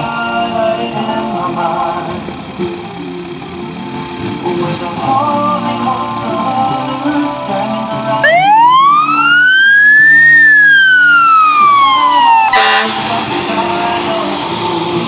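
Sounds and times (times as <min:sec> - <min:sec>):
music: 0:00.0 - 0:15.0
emergency vehicle siren wailing: 0:07.6 - 0:15.0
loud horn blast: 0:12.4 - 0:13.4.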